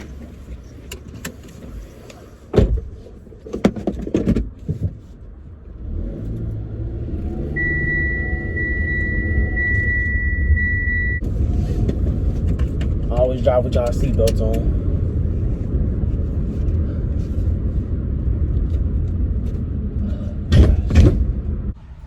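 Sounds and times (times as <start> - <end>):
car door thumps: 2.5 - 2.9, 20.5 - 21.4
car engine pulling away: 5.6 - 20.0
seatbelt warning chime: 7.6 - 11.2.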